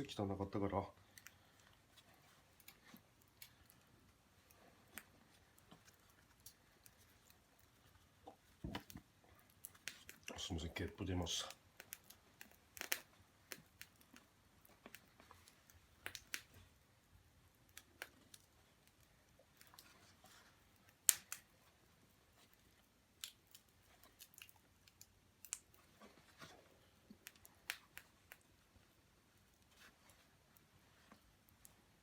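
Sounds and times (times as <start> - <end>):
small clicks and taps: 11.5 - 16.6, 23.2 - 26.5, 27.1 - 28.5.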